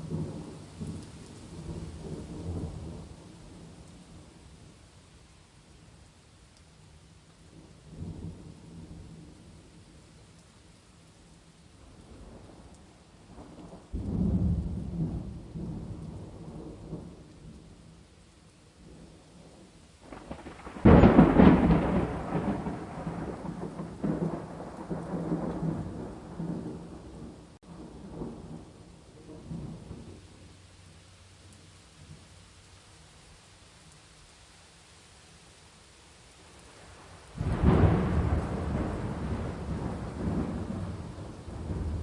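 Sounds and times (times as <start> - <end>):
steady hiss of rain: 0.0 - 42.0
thunderclaps rumbling: 13.3 - 17.6, 18.9 - 30.2, 36.8 - 42.0.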